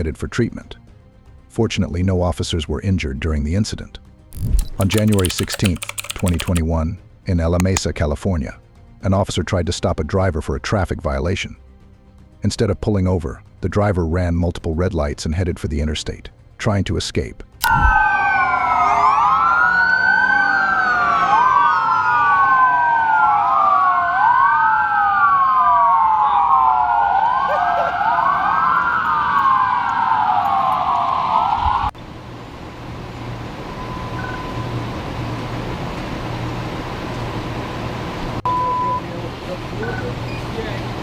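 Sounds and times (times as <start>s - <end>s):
police sirens wailing: 17.7s - 31.6s.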